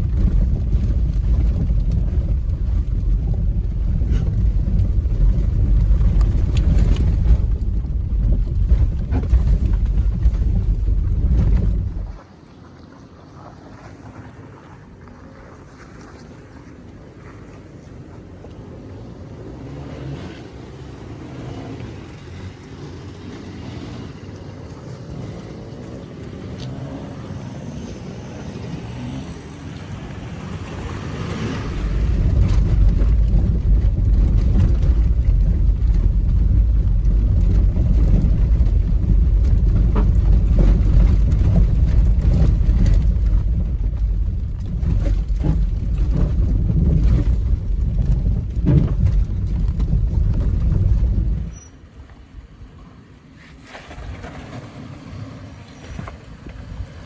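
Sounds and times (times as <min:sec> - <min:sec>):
loud low rumble: 0:00.0 - 0:12.2
vehicle driving on rough trail: 0:00.0 - 0:57.0.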